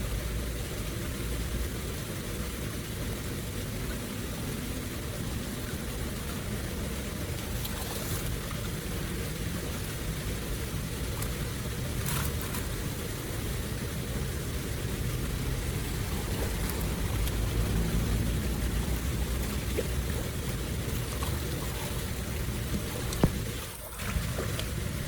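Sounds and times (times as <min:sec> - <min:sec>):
floodwater rushing: 0:00.0 - 0:25.0.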